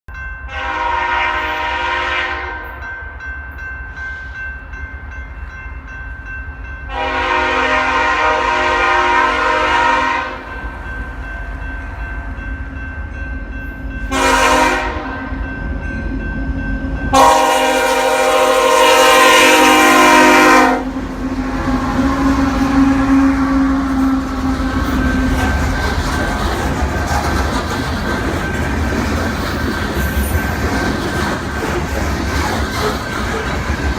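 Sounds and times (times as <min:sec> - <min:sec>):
locomotive air horn blasts: 0:00.5 - 0:02.8, 0:06.9 - 0:10.5, 0:14.1 - 0:15.3, 0:17.1 - 0:25.4
train rumble: 0:00.5 - 0:33.9.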